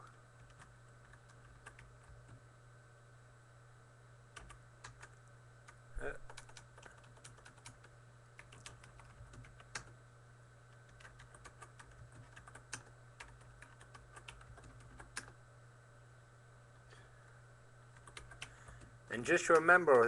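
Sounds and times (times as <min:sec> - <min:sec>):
low electrical hum: 0:00.0 - 0:20.0
typing on computer keyboard: 0:00.4 - 0:02.4, 0:04.4 - 0:05.2, 0:06.3 - 0:09.9, 0:10.9 - 0:15.4, 0:18.0 - 0:18.8.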